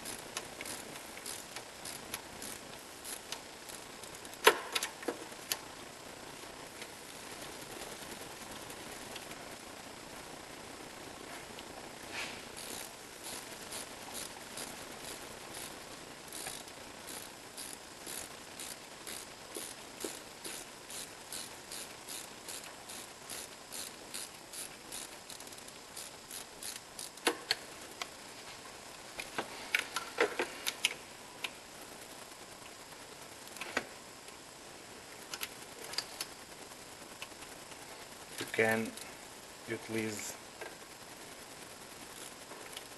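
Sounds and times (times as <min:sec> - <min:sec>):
ratchet wrench clicking: 0:00.0 - 0:04.9, 0:12.6 - 0:27.6.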